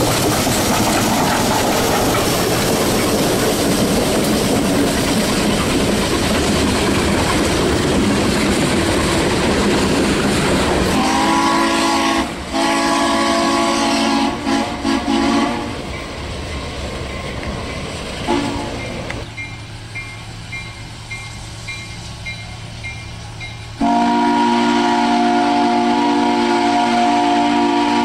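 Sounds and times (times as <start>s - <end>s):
train rail and wheel noise: 0.0s - 28.0s
train horn chord: 10.9s - 15.8s, 18.3s - 18.8s, 23.8s - 28.0s.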